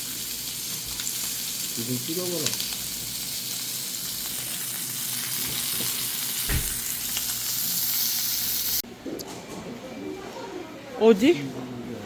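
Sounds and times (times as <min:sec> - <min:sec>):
low thump: 0:06.5 - 0:06.8.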